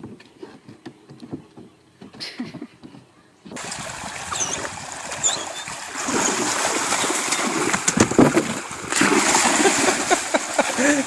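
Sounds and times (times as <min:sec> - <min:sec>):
water splashing and sloshing: 0:03.5 - 0:11.0.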